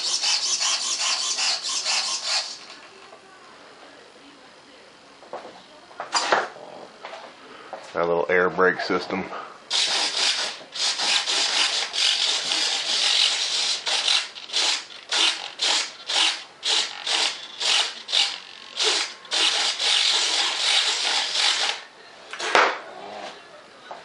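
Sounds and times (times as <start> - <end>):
hand sanding rasping: 0.0 - 2.7, 9.8 - 21.8.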